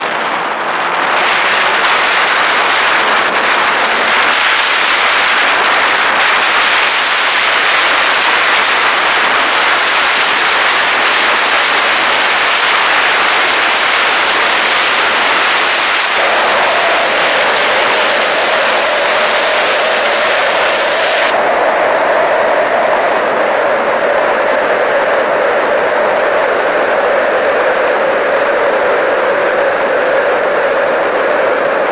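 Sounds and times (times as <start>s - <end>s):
heavy rain hissing: 0.9s - 24.0s
mid-pitched hum: 1.6s - 25.1s.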